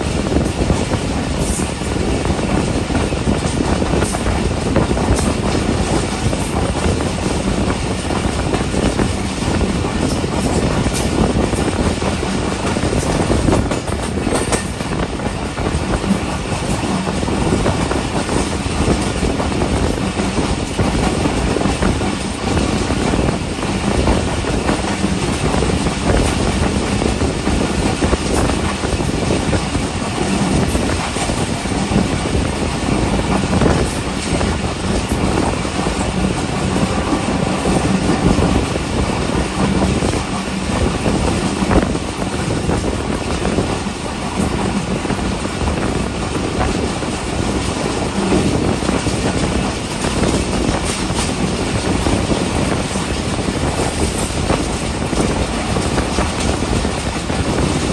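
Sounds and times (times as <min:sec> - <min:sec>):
train wheels rumbling on rails: 0:00.0 - 0:57.9.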